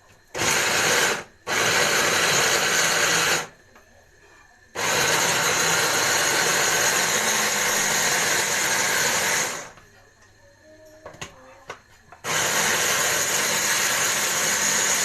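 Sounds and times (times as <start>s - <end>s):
hand blender motor grinding: 0.4s - 3.5s, 4.8s - 9.8s, 12.2s - 15.0s.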